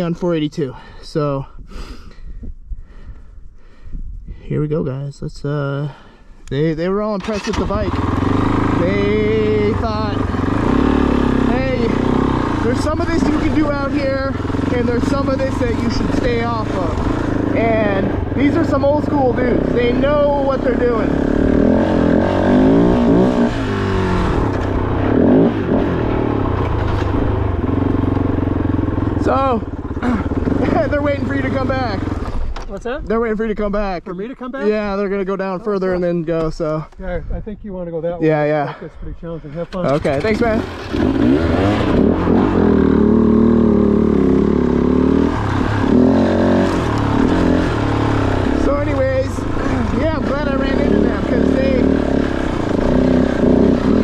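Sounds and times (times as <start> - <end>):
motorcycle engine revving: 7.1 - 32.6, 39.8 - 54.0.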